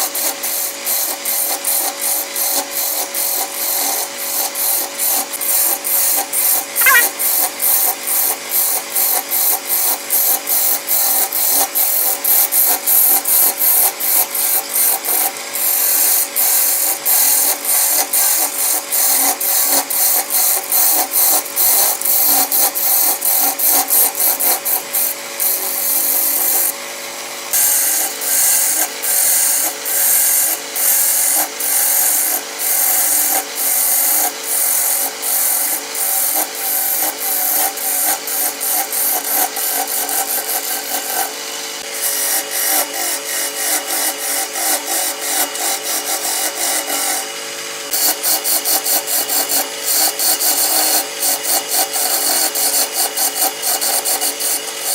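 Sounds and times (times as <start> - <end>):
tool scraping spinning wood: 27.6 - 47.3, 47.9 - 54.9.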